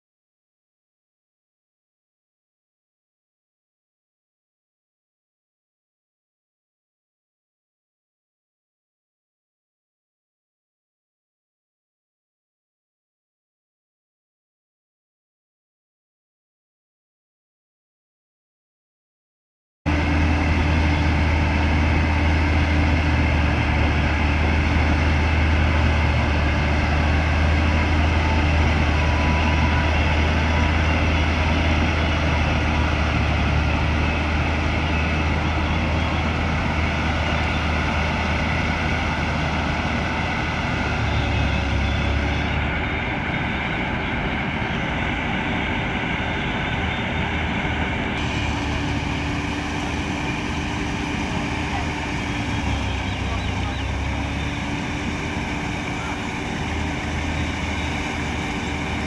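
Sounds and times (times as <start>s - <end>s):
combine harvester engine hum: 19.9s - 59.0s.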